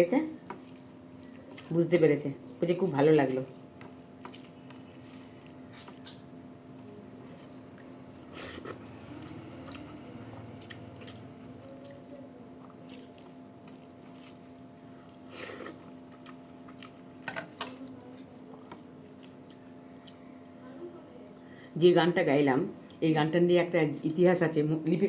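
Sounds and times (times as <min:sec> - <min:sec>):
person chewing with mouth smacks: 0:04.2 - 0:17.0, 0:18.2 - 0:20.3.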